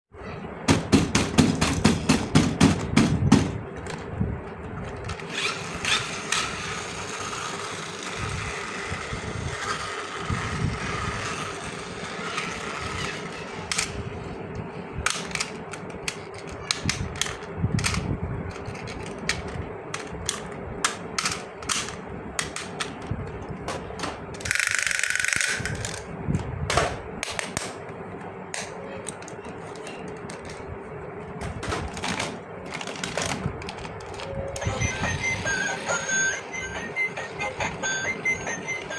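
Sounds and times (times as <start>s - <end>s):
plastic toy parts clicking: 15.1s - 23.0s, 24.3s - 26.1s.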